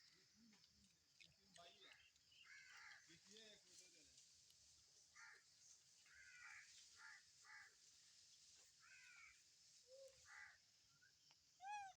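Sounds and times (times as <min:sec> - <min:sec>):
harsh caw-like animal calls: 0:02.4 - 0:03.0, 0:05.2 - 0:05.5, 0:06.1 - 0:07.8, 0:08.8 - 0:09.4, 0:10.2 - 0:10.6.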